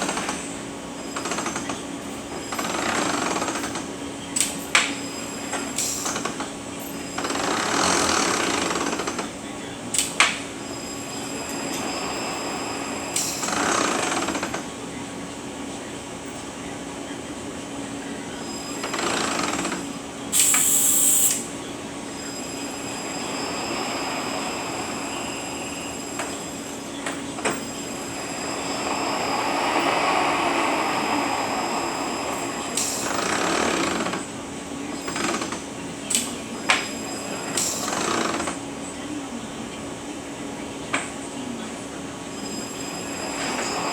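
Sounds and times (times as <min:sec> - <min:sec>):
loud hiss: 0:20.3 - 0:27.0, 0:27.6 - 0:34.5
truck transmission running: 0:21.4 - 0:36.9.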